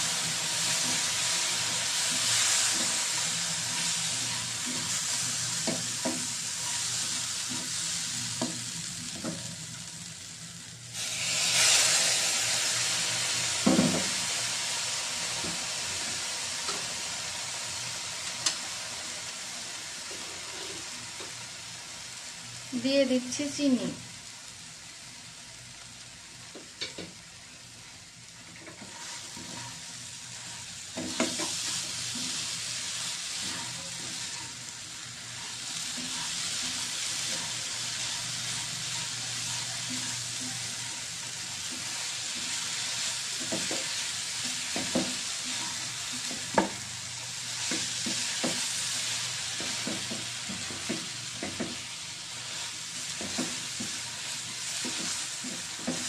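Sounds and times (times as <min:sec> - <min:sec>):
sugar sizzling in a pan: 0:00.0 - 0:56.0
spatula scraping and tapping pan: 0:00.6 - 0:05.0, 0:05.6 - 0:06.8, 0:28.6 - 0:29.8, 0:30.9 - 0:32.5, 0:33.3 - 0:34.6, 0:35.3 - 0:46.8, 0:47.5 - 0:48.7, 0:49.6 - 0:51.9, 0:53.1 - 0:56.0.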